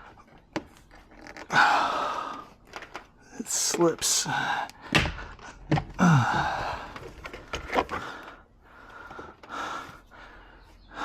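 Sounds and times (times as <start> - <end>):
man breathing heavily: 1.5 - 2.7, 4.0 - 11.0.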